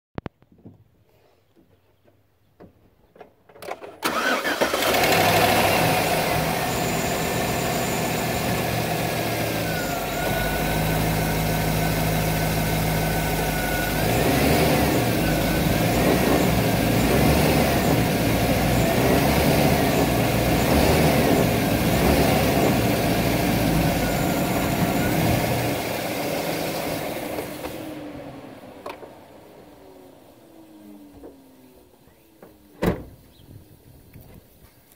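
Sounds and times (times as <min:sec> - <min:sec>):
truck engine cranking and running: 0:03.2 - 0:31.5
engine revving: 0:04.0 - 0:28.2.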